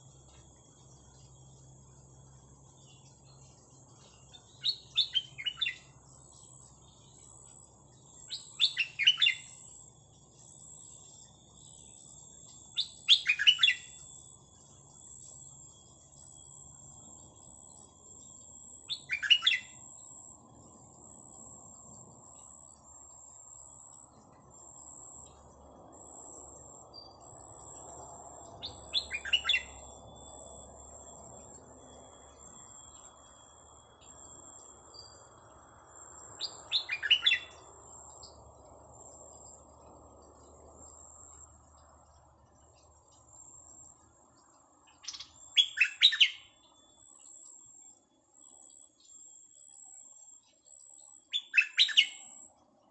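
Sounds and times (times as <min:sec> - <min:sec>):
faint high pulsing insects: 0:00.0 - 0:52.9
bird calls in sharp notes: 0:12.8 - 0:14.0, 0:28.6 - 0:29.9, 0:36.4 - 0:37.7, 0:44.9 - 0:46.8, 0:51.3 - 0:52.4.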